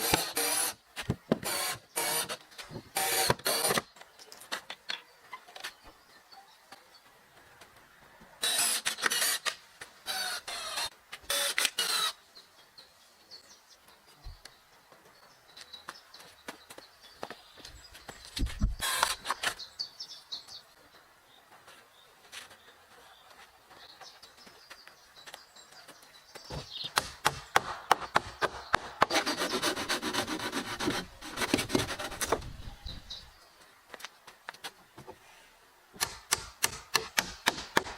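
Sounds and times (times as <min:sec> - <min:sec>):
rasping scraping strokes: 0:29.0 - 0:32.7
rough rubbing of wood: 0:29.0 - 0:33.0.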